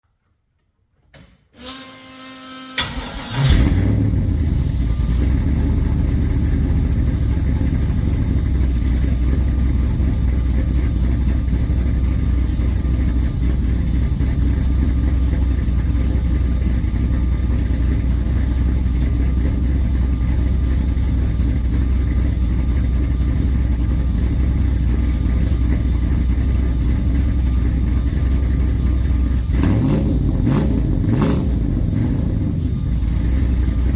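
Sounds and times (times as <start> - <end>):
starter motor cranking: 1.6 - 5.5
engine revving: 2.8 - 10.4, 29.2 - 33.9
engine idling deeply: 3.5 - 33.9.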